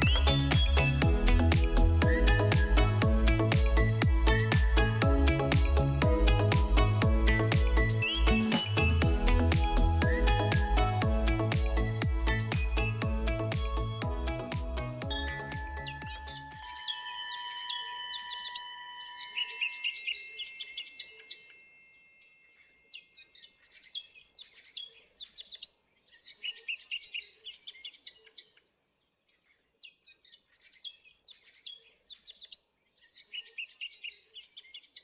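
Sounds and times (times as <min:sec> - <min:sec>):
held music chord: 0:00.0 - 0:16.7
small birds chirping: 0:07.3 - 0:10.5.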